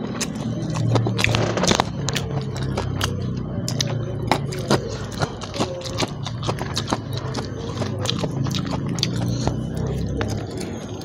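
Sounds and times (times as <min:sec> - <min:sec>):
low steady hum: 0:00.0 - 0:11.0
mouth chewing wet clicks: 0:00.0 - 0:11.0.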